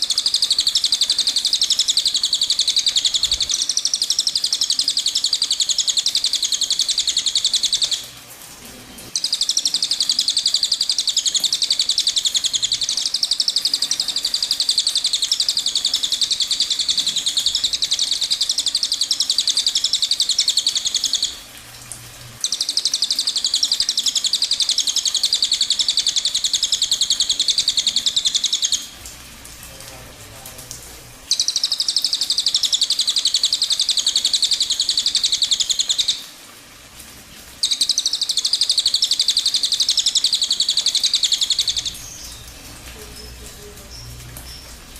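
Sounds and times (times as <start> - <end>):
bird trilling: 37.6 - 42.4.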